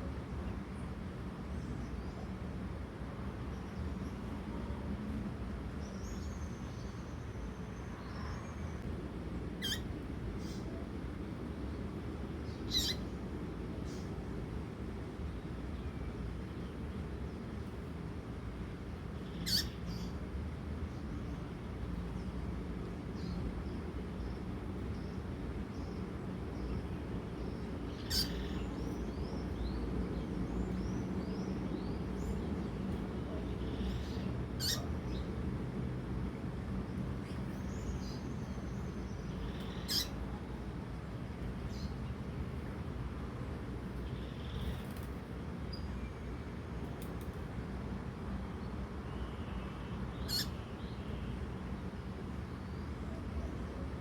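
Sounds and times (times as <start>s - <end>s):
low background hum: 0.0s - 54.0s
bird peeping: 12.7s - 13.0s, 33.6s - 34.9s, 39.3s - 40.2s.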